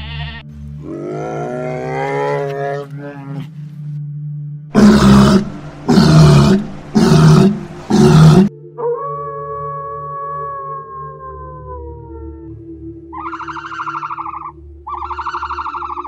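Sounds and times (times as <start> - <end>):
bear roaring: 0.8 - 3.5, 4.8 - 8.5
animal call rising in pitch: 9.8 - 16.0.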